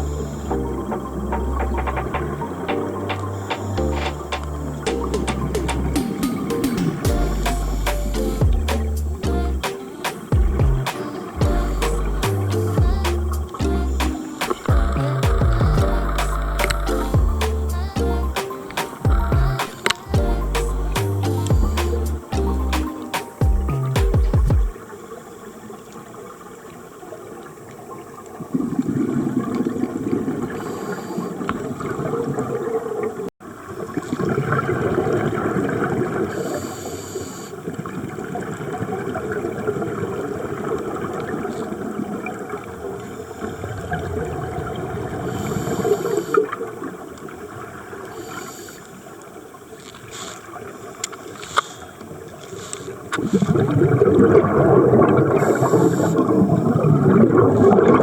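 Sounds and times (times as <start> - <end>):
diver's exhaust bubbles gurgling: 53.2 - 58.0.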